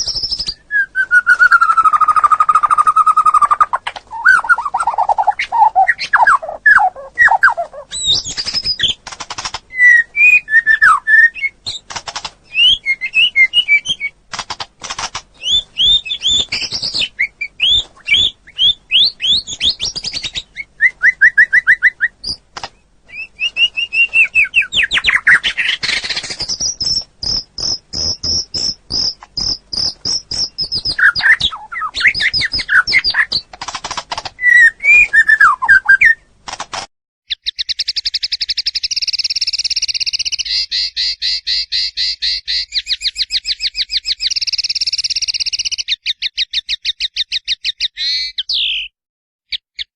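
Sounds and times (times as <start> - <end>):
songbird singing: 0.0 - 14.2, 15.3 - 33.5, 34.3 - 36.4, 37.3 - 49.9.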